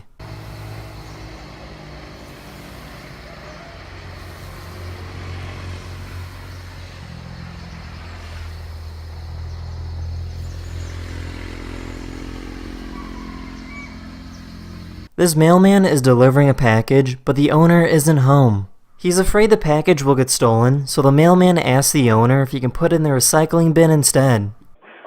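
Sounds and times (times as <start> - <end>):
honeybees buzzing: 0.0 - 15.1.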